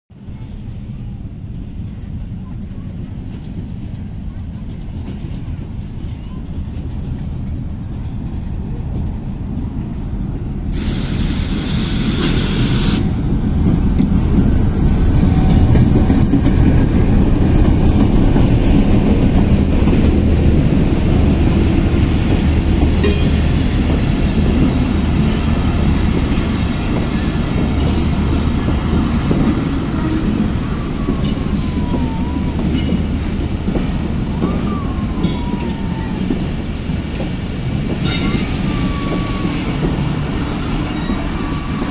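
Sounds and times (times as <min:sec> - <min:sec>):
train passing rumble: 0:00.1 - 0:41.9
hiss rush: 0:10.7 - 0:13.6
wheel squeals: 0:38.1 - 0:41.9.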